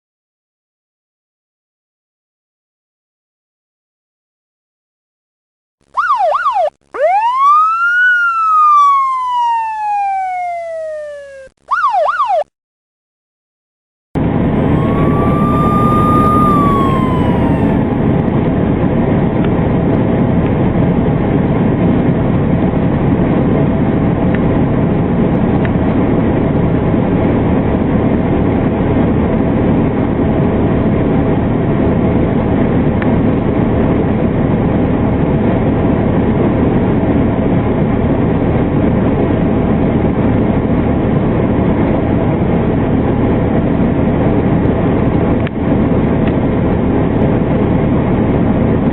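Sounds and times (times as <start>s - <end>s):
siren wailing: 5.9s - 12.5s, 14.3s - 18.4s
vehicle and road noise: 14.2s - 48.9s.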